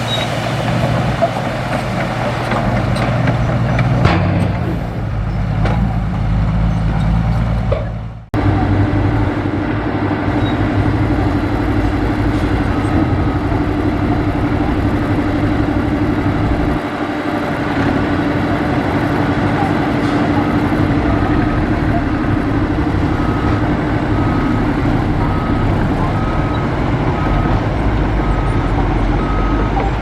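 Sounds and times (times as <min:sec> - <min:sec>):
diesel engine humming: 0:00.0 - 0:30.0
heavy diesel machinery running: 0:00.0 - 0:30.0
metal clanks: 0:02.4 - 0:06.0.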